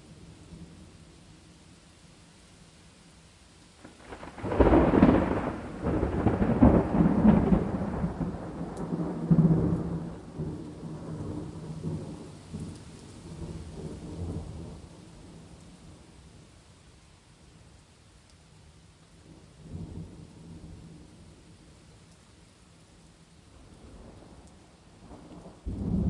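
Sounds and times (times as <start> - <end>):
steady rain: 0.0 - 26.0
thunder cracking and rumbling: 3.8 - 14.9, 25.0 - 26.0.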